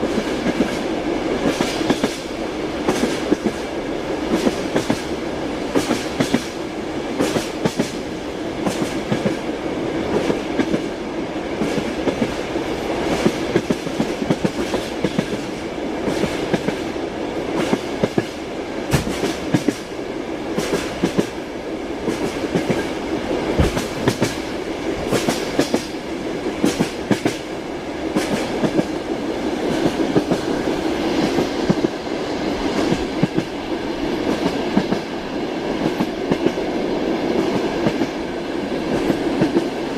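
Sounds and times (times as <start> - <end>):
train wheels clacking over rail joints: 0.0 - 3.7, 4.3 - 5.1, 5.7 - 6.6, 7.2 - 8.0, 8.6 - 9.4, 13.0 - 16.9, 17.5 - 19.9, 20.5 - 21.4, 22.0 - 26.0, 26.6 - 27.5, 28.1 - 28.9
rumble of moving train carriage: 0.0 - 39.9.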